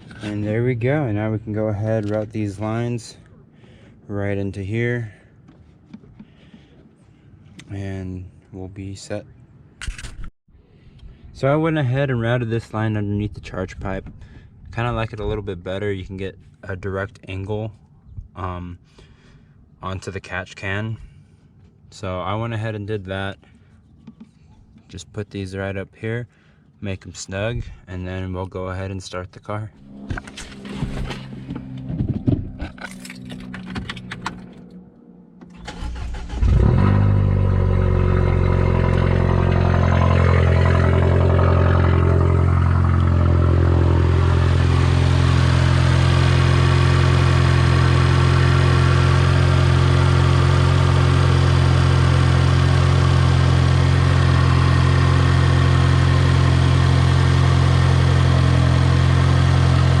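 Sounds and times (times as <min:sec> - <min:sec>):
car engine starting and idling: 0:29.8 - 1:00.0.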